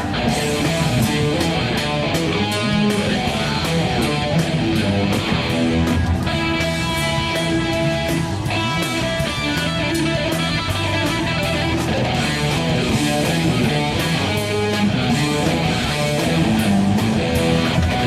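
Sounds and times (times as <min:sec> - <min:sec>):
electric ukulele riff with effects: 0:00.0 - 0:18.0
steady rock beat: 0:00.0 - 0:18.0.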